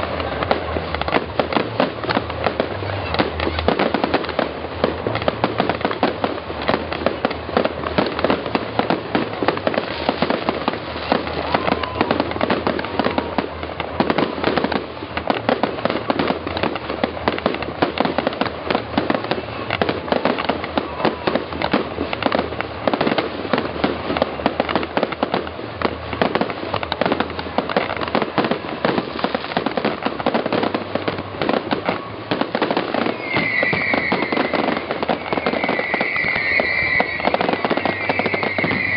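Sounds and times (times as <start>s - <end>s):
fireworks bangs and crackles: 0.0s - 38.9s
firework whistles: 5.2s - 16.4s, 28.1s - 38.9s.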